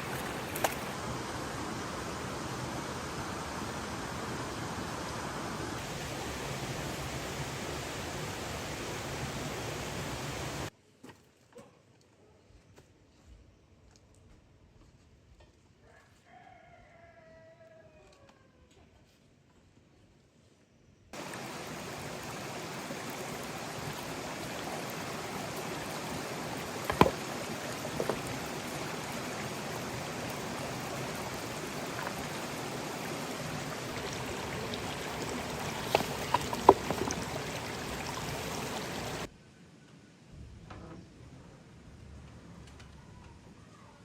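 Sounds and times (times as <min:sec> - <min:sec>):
running water rushing: 0:00.0 - 0:10.7, 0:21.2 - 0:39.3.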